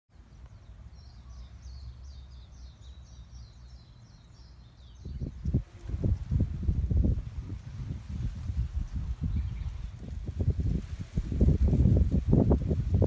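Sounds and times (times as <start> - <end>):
bird twittering song: 0.2 - 10.4.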